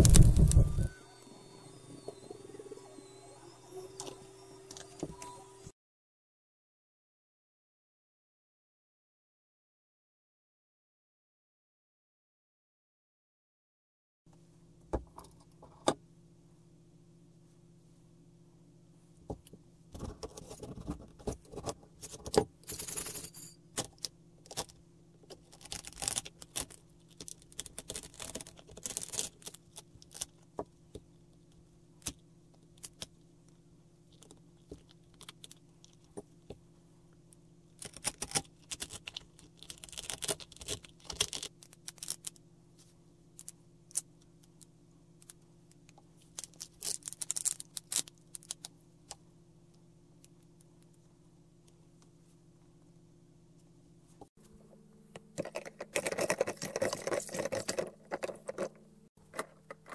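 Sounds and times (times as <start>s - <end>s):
steady low hum: 0.0s - 5.7s.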